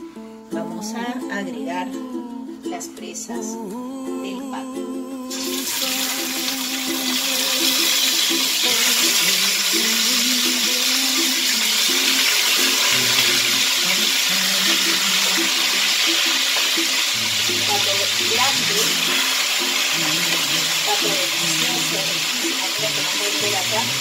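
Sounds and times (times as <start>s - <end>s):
meat frying in hot oil: 5.3s - 24.0s.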